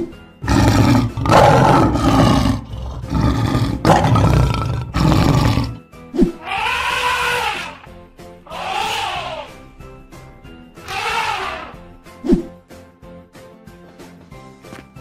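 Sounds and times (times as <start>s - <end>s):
lion roaring: 0.4s - 5.8s, 6.4s - 7.9s.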